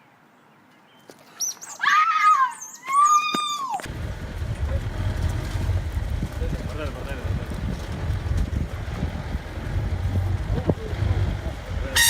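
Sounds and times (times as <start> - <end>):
quick high chirping calls: 0.9 - 3.8
high-pitched animal cry: 1.4 - 3.8
wind rumble on microphone: 3.9 - 12.0.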